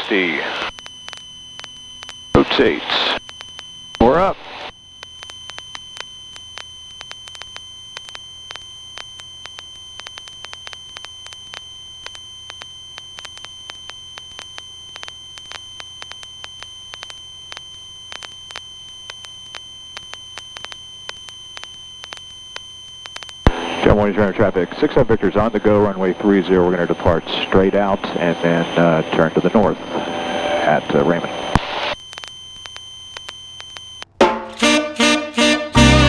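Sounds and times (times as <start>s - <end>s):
steady high-pitched tone: 34.2s - 36.0s
faint low engine drone: 34.6s - 36.0s.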